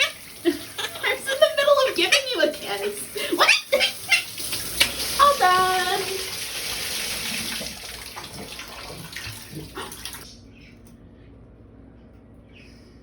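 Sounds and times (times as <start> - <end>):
shower water spraying: 0.0 - 10.3.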